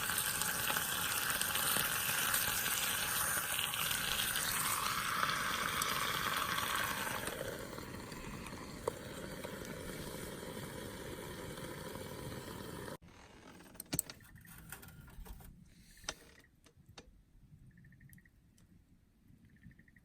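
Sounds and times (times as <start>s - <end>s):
steady hissing noise: 0.0s - 13.0s.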